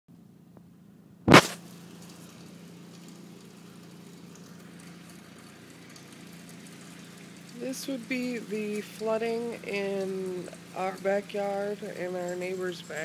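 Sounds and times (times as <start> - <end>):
low steady hum: 0.1 - 13.0
sharp knock: 1.3 - 1.6
rain and water hiss: 1.3 - 13.0.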